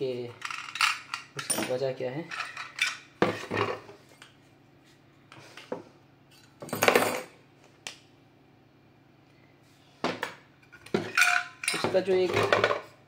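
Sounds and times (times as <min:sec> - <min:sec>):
metal parts clinking and scraping: 0:00.3 - 0:03.0, 0:10.6 - 0:12.8.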